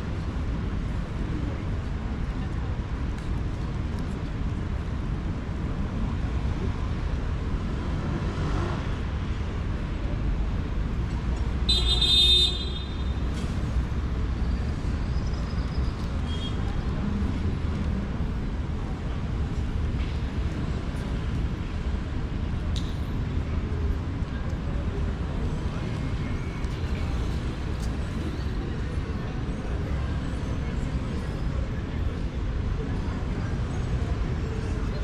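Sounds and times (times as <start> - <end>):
city street traffic rumble: 0.0 - 35.0
vehicle horn toot: 11.7 - 13.2.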